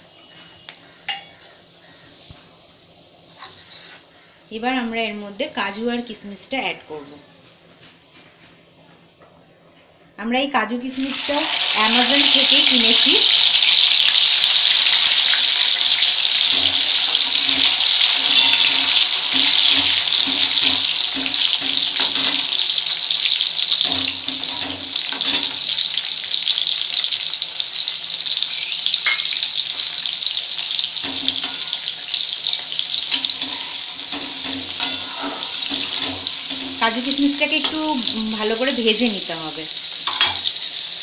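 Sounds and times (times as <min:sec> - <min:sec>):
nuts sizzling in hot oil: 0:10.8 - 0:41.0.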